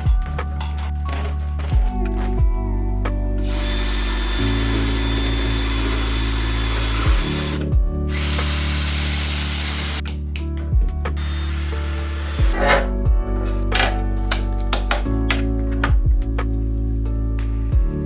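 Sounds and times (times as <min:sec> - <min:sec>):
background music with steady beat: 0:00.0 - 0:18.0
power drill whining: 0:03.4 - 0:10.0, 0:11.2 - 0:15.5.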